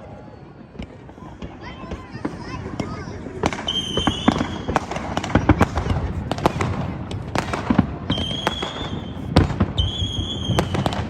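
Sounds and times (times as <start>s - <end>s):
fireworks bangs and cracks: 0.4s - 11.0s
high-pitched firework whistle: 3.6s - 6.0s, 8.1s - 11.0s.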